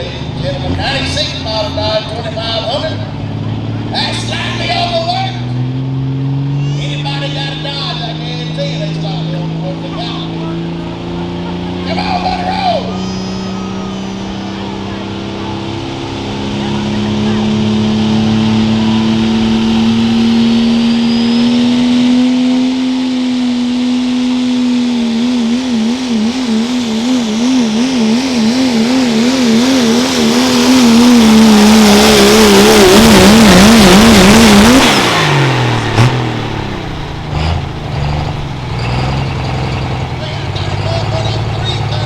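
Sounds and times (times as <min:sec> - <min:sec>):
diesel truck engine at full throttle: 0:00.0 - 0:42.0.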